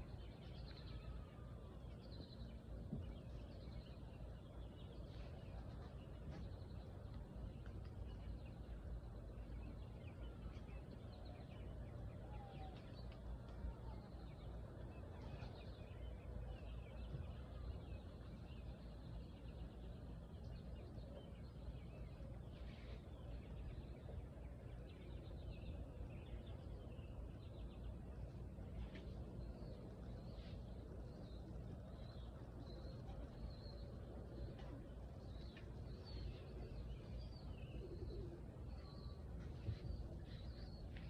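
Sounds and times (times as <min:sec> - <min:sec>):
steady low rumble: 0:01.8 - 0:41.0
birds chirping: 0:15.2 - 0:41.0.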